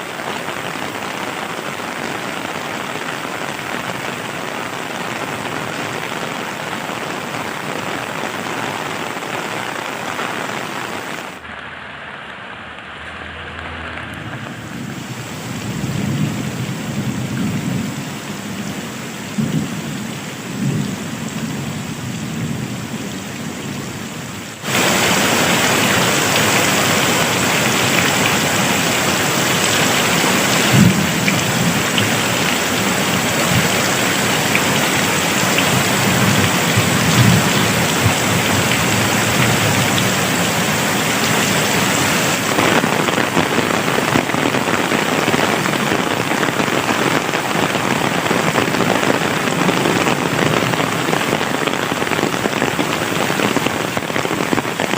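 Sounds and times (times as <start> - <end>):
heavy rain: 0.0 - 54.9
steady rain: 0.0 - 54.9
thunder rumbles: 10.5 - 23.0, 24.6 - 54.9.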